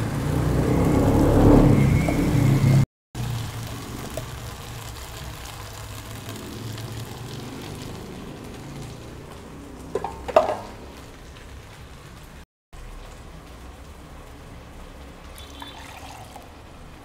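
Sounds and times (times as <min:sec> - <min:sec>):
onions sizzling in a pan: 0:00.0 - 0:17.0
utensil knocking on pan: 0:10.0 - 0:10.8.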